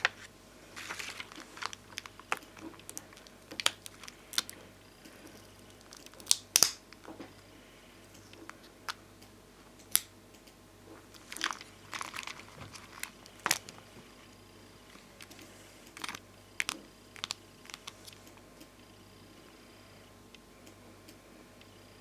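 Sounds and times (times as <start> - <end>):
crinkly rustles: 0.0 - 6.3, 10.9 - 18.3
plastic stickers clicking: 0.8 - 7.1, 11.1 - 13.8, 15.0 - 18.3.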